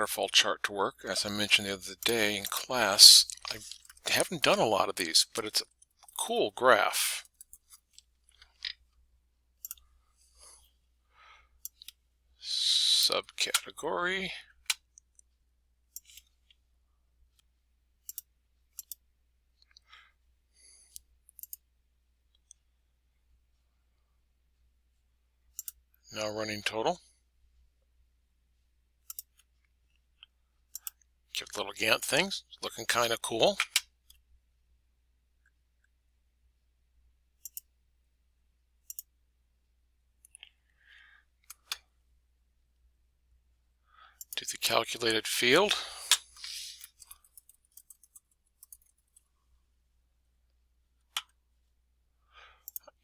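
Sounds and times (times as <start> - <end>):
computer mouse clicking: 9.6 - 9.8, 11.6 - 12.0, 15.9 - 16.3, 18.0 - 19.0, 20.9 - 21.6, 25.5 - 25.8, 29.0 - 29.4, 30.7 - 31.0, 33.5 - 34.2, 37.4 - 37.7, 38.8 - 39.1, 45.6 - 49.2, 52.6 - 52.9
computer mouse buttons clicking: 11.6 - 12.0, 15.9 - 16.3, 18.0 - 19.0, 29.0 - 29.4, 33.5 - 33.8, 38.8 - 39.1.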